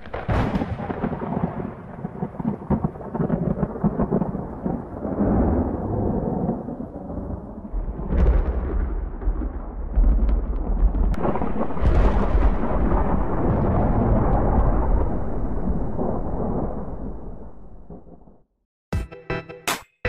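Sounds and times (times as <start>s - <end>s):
sharp thunder crack: 0.0s - 18.3s
thunder rumbling: 0.0s - 18.4s.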